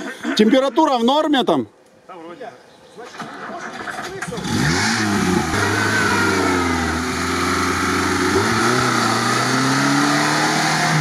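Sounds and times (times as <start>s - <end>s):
car engine revving hard: 4.3s - 11.0s.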